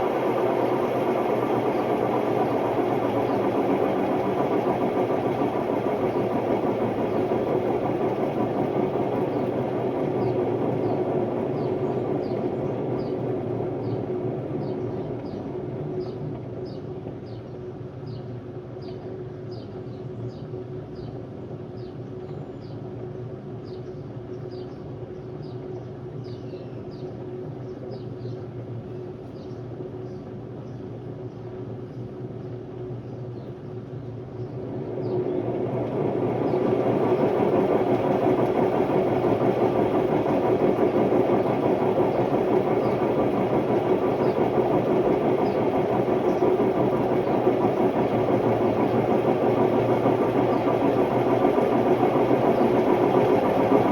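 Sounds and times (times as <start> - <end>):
washing machine spinning: 0.0 - 18.0, 33.8 - 53.9.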